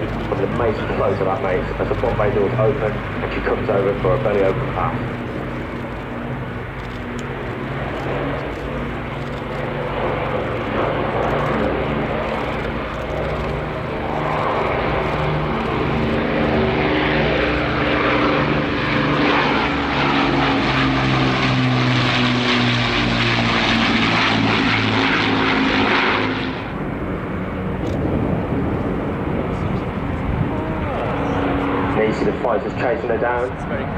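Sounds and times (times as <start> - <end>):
propeller plane engines flying past: 0.0 - 33.9.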